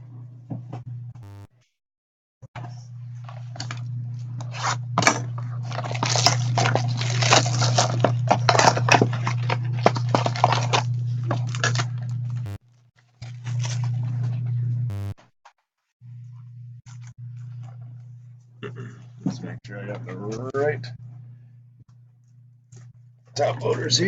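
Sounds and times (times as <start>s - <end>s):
steady low hum: 2.6s - 12.6s, 13.3s - 15.2s, 16.0s - 24.0s
plastic packaging crinkling: 5.4s - 12.4s.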